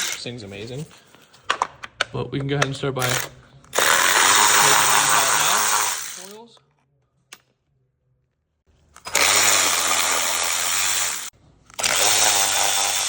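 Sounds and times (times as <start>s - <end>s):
electric ratchet running: 3.0s - 6.4s, 9.0s - 13.0s.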